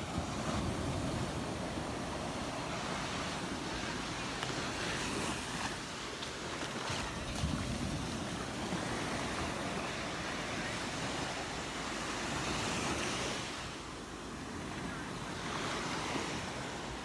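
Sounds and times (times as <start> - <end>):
surf washing onto beach: 0.0 - 17.0
wind buffeting microphone: 6.9 - 10.2.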